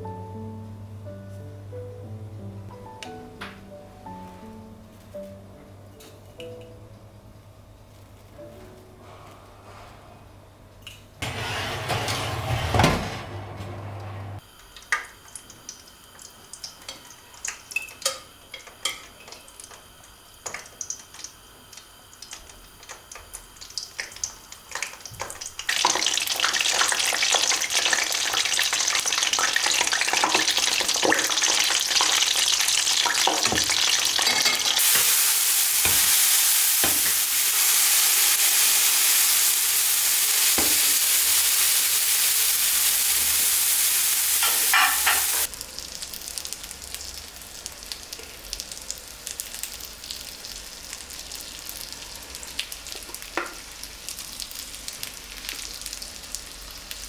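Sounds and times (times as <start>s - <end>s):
food sizzling in a frying pan: 14.4s - 57.0s.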